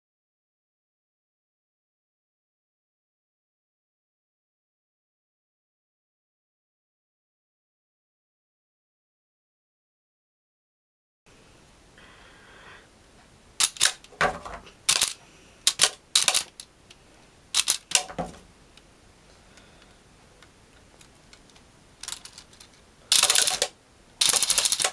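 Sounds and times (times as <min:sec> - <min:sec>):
toy gun firing mechanism clicking: 0:13.6 - 0:14.1, 0:14.9 - 0:16.6, 0:17.6 - 0:18.1, 0:22.0 - 0:24.9.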